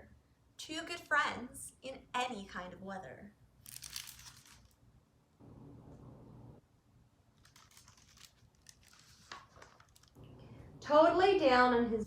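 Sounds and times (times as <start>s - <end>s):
book pages rustling: 3.6s - 4.8s, 7.4s - 10.2s.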